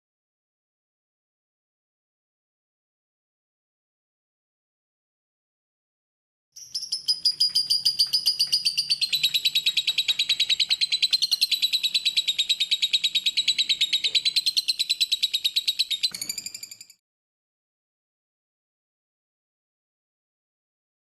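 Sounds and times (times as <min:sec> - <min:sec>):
lovebird trilling high chirps: 0:06.6 - 0:17.0.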